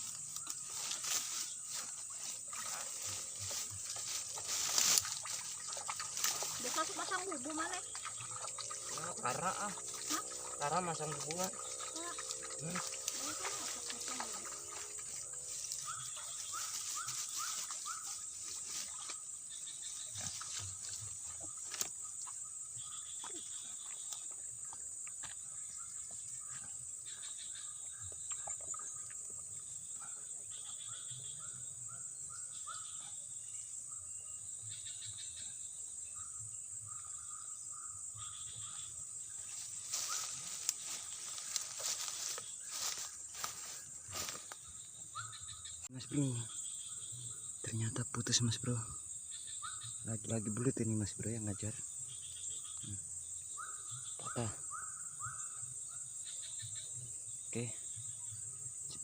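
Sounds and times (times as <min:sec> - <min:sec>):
animals calling with rising chirps: 0:00.0 - 0:24.4
insects droning: 0:00.0 - 0:59.0.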